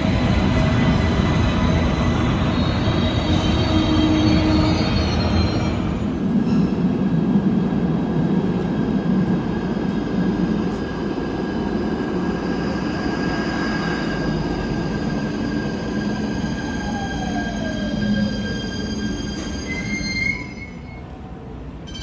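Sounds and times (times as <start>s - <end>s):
train rumbling on rails: 0.0s - 22.0s
high wheel squeal: 2.0s - 6.2s, 15.4s - 21.1s.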